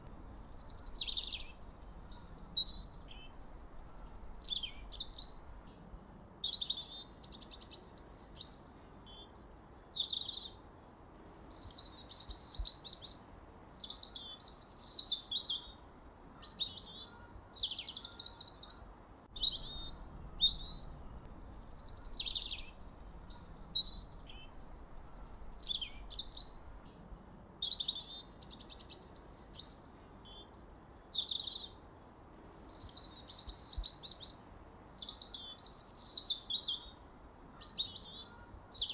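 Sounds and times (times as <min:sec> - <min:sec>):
birds chirping: 0:00.0 - 0:06.1, 0:19.2 - 0:29.4
faint low background hiss: 0:00.0 - 0:38.9.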